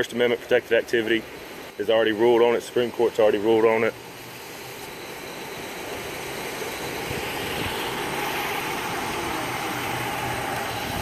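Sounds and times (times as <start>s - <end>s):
car engine idling: 7.2s - 11.0s.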